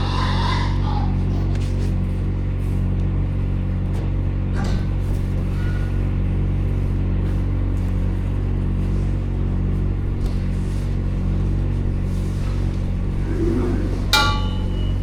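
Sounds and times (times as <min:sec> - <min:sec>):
loader engine running: 0:00.0 - 0:15.0.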